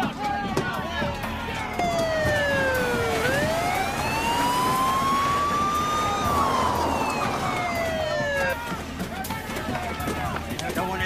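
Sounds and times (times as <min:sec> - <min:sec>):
police siren wailing: 0:01.7 - 0:08.9.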